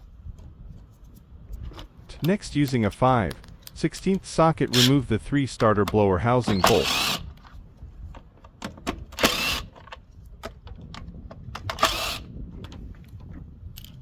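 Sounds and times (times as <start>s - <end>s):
metal tool clicks: 2.2s - 4.9s
power socket tool bursts: 4.7s - 5.0s, 6.4s - 7.4s, 9.1s - 9.9s, 11.7s - 12.3s.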